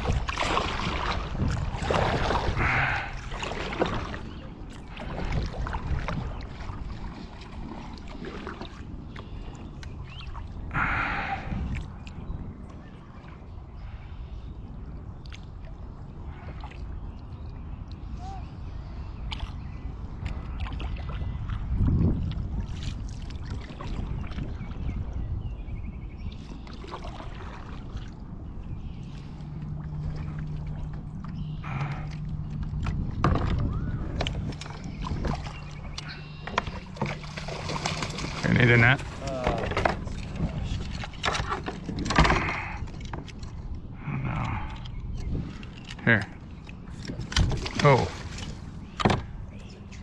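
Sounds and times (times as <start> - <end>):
water sloshing against kayak hull: 0.0 - 50.0.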